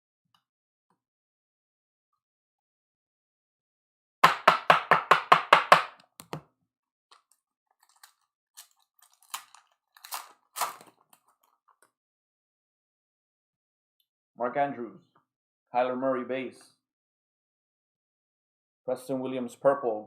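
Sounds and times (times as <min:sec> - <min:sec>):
card pack crinkling clicks: 0:07.1 - 0:11.6
cards rustling: 0:07.2 - 0:11.6.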